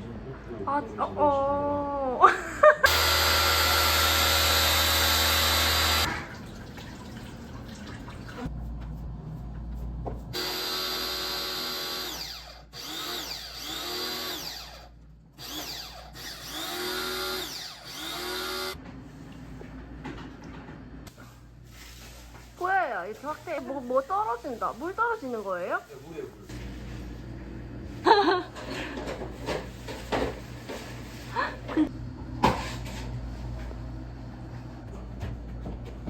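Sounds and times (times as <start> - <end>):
power drill running: 2.8 - 6.1, 10.4 - 18.8.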